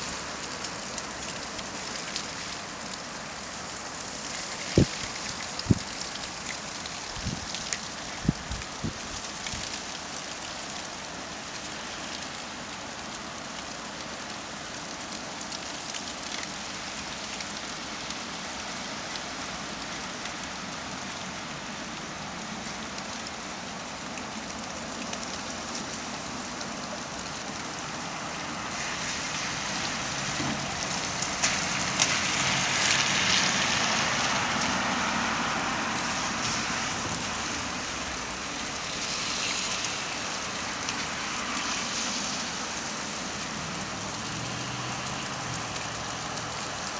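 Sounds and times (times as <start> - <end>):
steady rain: 0.0 - 46.9.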